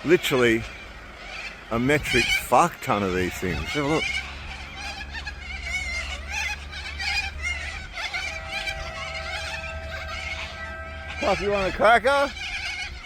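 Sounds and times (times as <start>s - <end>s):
flock of birds screeching: 0.0s - 13.0s
steady low rumble: 4.0s - 11.6s
steady tone: 8.1s - 11.6s.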